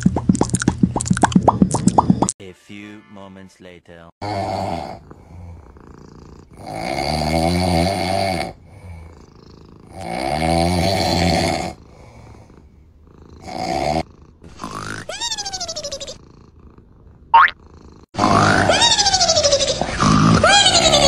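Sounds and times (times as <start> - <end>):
loud snoring: 4.2 - 15.1, 16.2 - 18.7
quiet breathing: 5.0 - 6.5, 8.5 - 9.7, 11.8 - 13.4.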